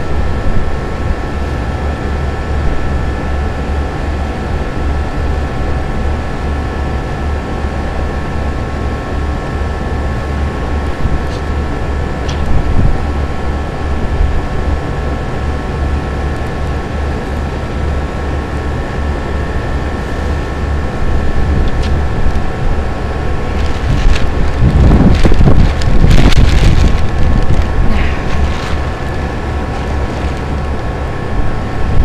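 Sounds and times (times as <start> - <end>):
mechanical drone: 0.0 - 32.0
wind buffeting microphone: 10.5 - 14.7, 18.8 - 32.0.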